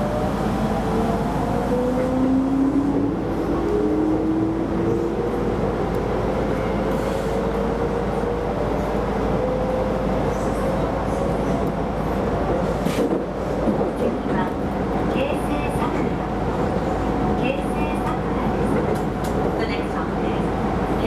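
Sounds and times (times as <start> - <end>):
train rolling rumble: 0.0 - 21.0.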